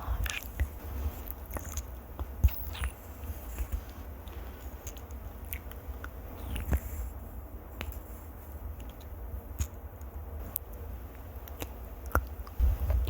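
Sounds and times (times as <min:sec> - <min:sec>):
soft clicks and crackles: 0:00.0 - 0:07.2, 0:07.8 - 0:13.0
low uneven rumble: 0:10.2 - 0:13.0.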